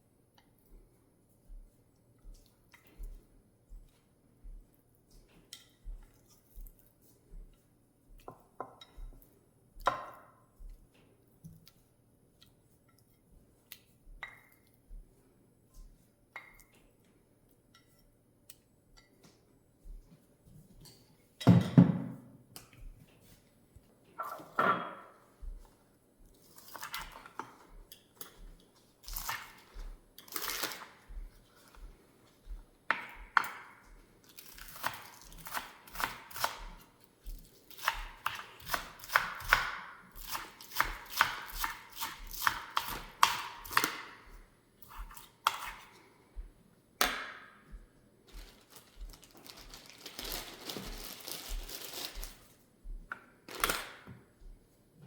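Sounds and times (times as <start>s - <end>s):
food prep crackles and taps: 1.5s - 15.2s, 24.6s - 54.6s.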